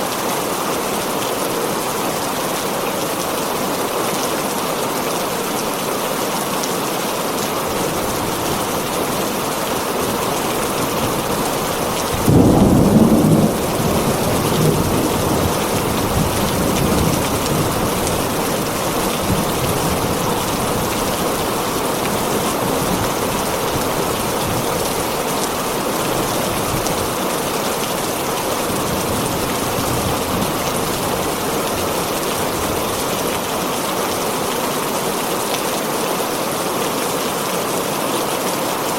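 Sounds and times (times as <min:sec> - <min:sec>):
heavy rain on a tin roof: 0:00.0 - 0:38.9
thunder rumbling: 0:10.7 - 0:20.9.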